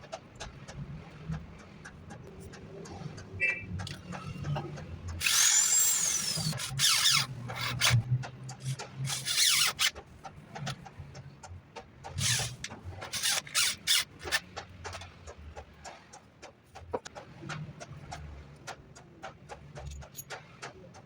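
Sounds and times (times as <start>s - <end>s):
wood scraped by hand: 12.1s - 14.4s.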